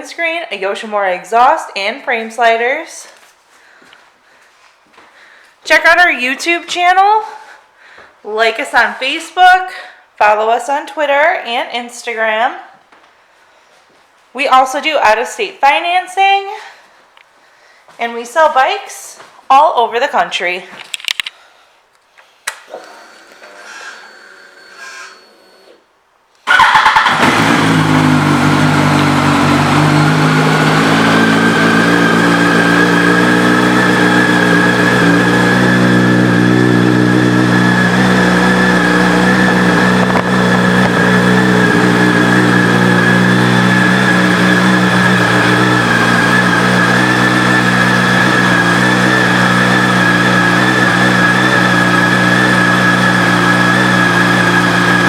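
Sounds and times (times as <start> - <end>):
motorcycle engine starting and idling: 26.4 - 55.0.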